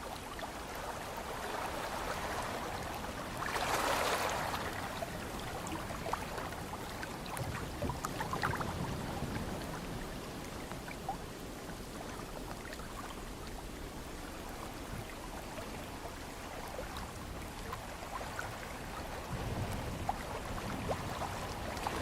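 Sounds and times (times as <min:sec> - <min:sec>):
ocean water lapping: 0:00.0 - 0:22.0.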